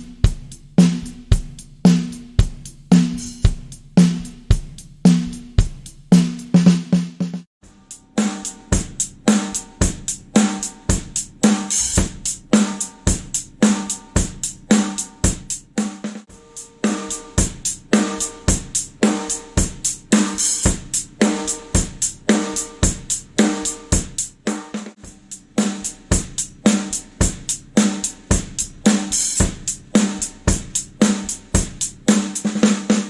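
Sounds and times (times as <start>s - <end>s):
snare drum hits with wire buzz: 0.0s - 7.5s.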